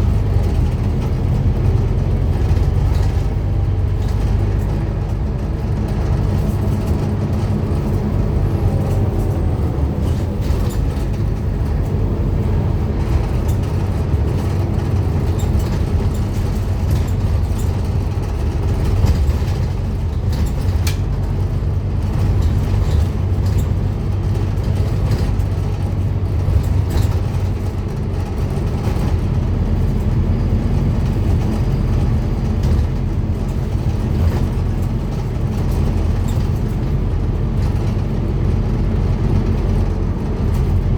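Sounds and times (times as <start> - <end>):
bus diesel engine running: 0.0 - 40.9
short knocks and rattles: 13.0 - 40.9.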